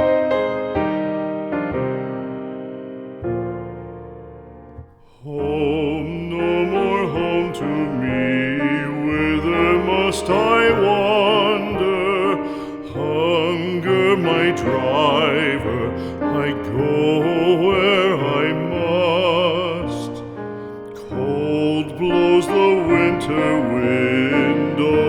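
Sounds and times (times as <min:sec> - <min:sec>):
soft piano: 0:00.0 - 0:25.0
operatic solo voice singing: 0:05.0 - 0:25.0.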